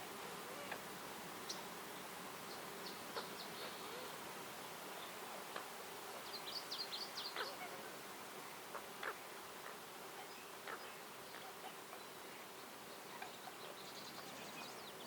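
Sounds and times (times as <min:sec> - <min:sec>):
bird chirping: 0:10.2 - 0:15.0.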